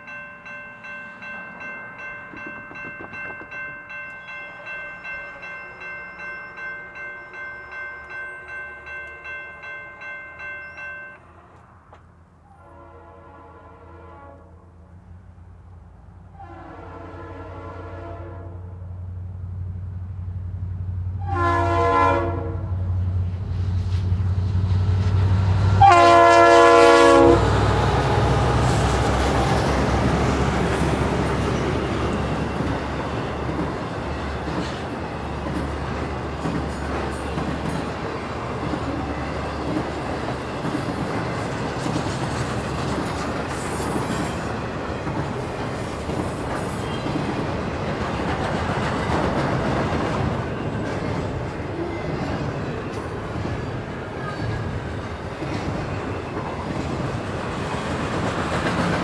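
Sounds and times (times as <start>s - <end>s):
train cars rumbling over rails: 0.0s - 59.0s
locomotive air horn: 12.4s - 14.7s, 16.3s - 18.8s, 21.2s - 22.9s, 25.8s - 28.4s.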